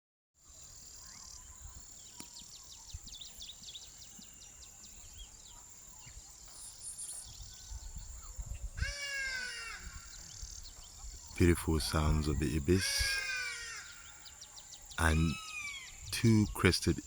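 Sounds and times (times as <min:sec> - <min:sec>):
insects whining: 0:00.4 - 0:17.0
small birds chirping: 0:00.4 - 0:17.0
ibis harsh call: 0:08.8 - 0:10.5, 0:11.3 - 0:17.0.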